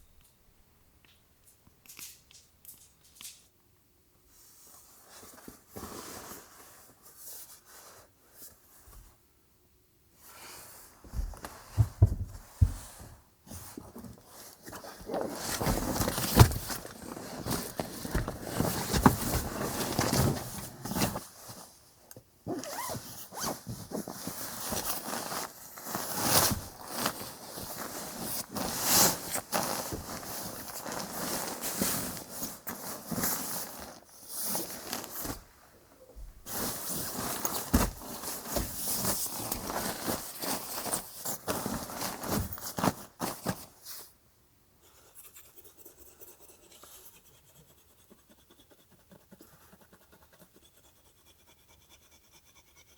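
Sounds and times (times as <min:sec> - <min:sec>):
scraping and rustling handling noise: 0:04.3 - 0:09.2, 0:10.2 - 0:44.2.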